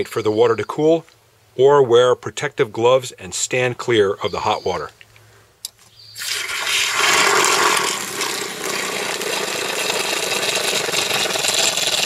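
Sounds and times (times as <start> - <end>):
water gushing from relief valve: 6.2 - 12.0.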